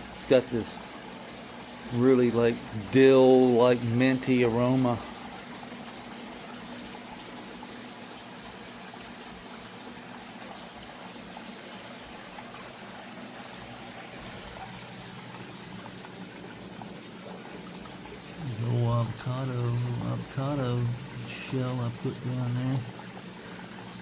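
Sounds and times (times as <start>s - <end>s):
creek water trickling: 0.0s - 24.0s.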